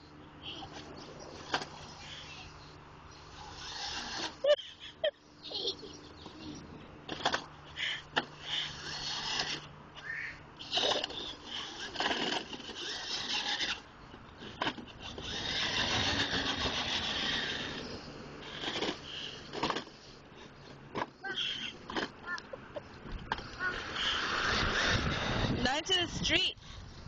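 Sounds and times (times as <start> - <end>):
plastic toy wheels scraping: 3.3 - 4.5, 7.1 - 9.7, 10.6 - 22.4, 23.2 - 26.0.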